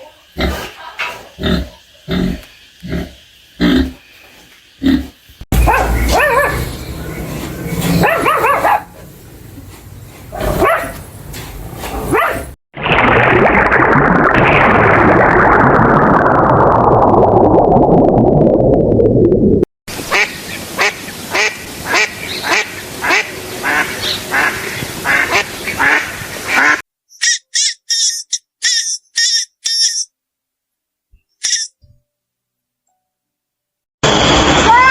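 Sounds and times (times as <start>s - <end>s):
duck quacking: 20.1s - 27.4s
short high-pitched chirps: 27.1s - 30.1s, 31.4s - 31.8s
loud noise falling in pitch: 34.0s - 34.9s.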